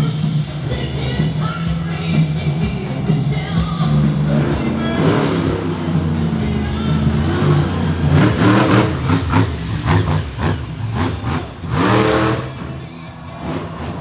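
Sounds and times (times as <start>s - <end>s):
truck engine revving: 0.0s - 14.0s
engine pops: 0.5s - 14.0s.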